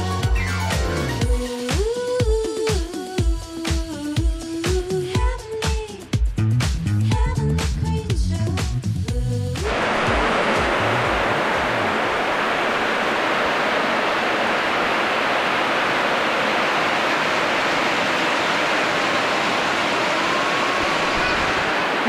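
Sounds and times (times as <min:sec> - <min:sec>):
heavy rain on metal roof: 0:09.6 - 0:22.0.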